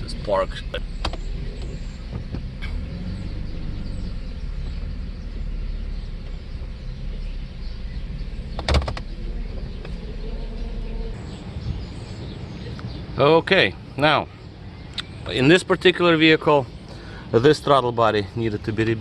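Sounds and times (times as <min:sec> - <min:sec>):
car engine idling: 0:00.0 - 0:19.0
sharp clicks: 0:08.6 - 0:09.1.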